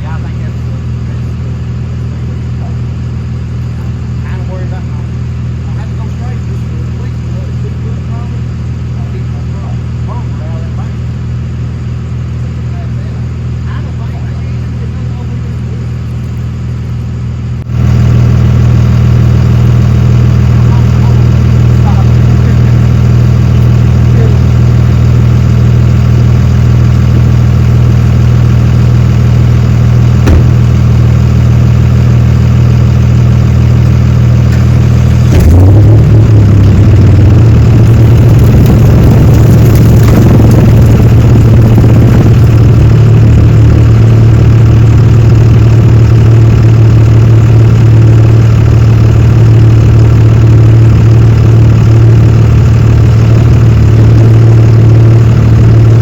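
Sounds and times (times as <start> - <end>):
vehicle engine idling and speeding up: 0.0 - 56.0.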